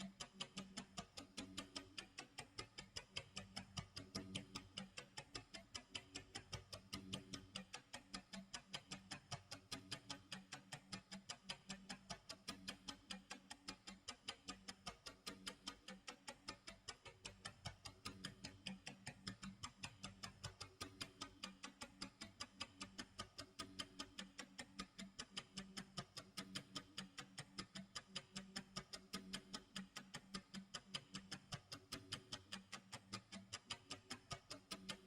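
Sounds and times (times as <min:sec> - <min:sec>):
clock ticking: 0:00.0 - 0:35.0.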